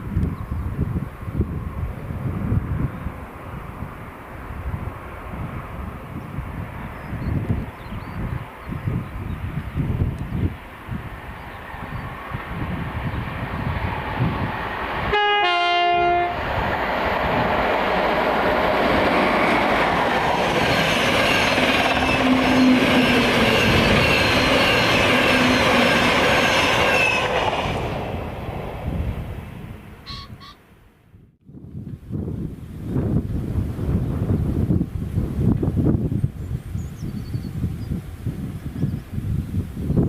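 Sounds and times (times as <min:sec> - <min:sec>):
train two-tone horn: 0:15.1 - 0:16.5, 0:21.2 - 0:27.5
train wheels running over rails: 0:16.4 - 0:29.0.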